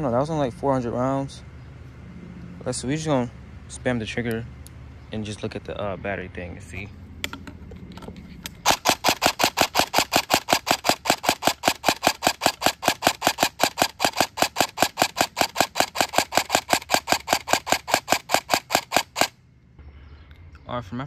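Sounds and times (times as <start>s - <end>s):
airsoft rifle mechanical shots: 8.6s - 19.4s.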